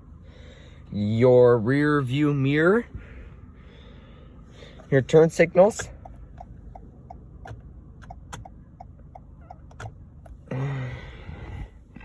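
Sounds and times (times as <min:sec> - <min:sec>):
turn signal ticking: 0:04.6 - 0:12.0.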